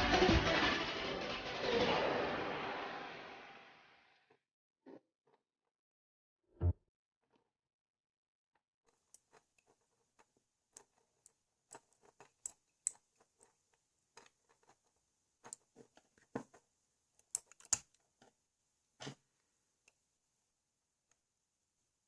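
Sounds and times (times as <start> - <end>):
plastic parts clicking and tapping: 17.2 - 18.4.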